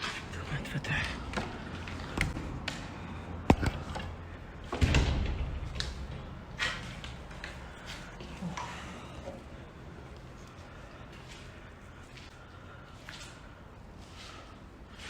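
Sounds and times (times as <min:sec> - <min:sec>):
door rattling and knocking: 0:04.6 - 0:07.0.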